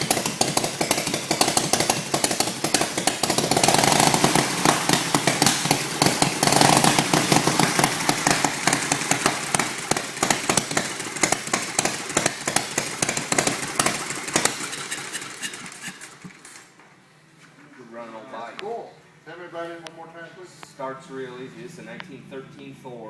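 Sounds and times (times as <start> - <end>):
motorcycle engine revving: 0.0 - 16.6.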